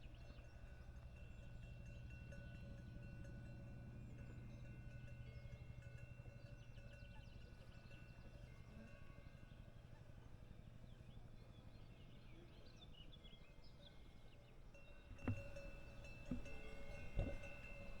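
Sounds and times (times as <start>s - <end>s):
cowbell clanks: 0.0s - 9.6s, 14.7s - 18.0s
cowbells ringing: 0.0s - 9.6s, 14.7s - 18.0s.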